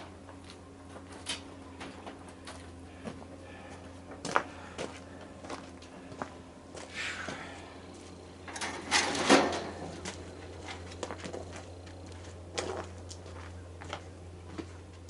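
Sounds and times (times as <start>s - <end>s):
steady low hum: 0.0s - 15.0s
clicks and knocks of parts: 8.4s - 11.5s
rattling scrape: 8.5s - 11.2s.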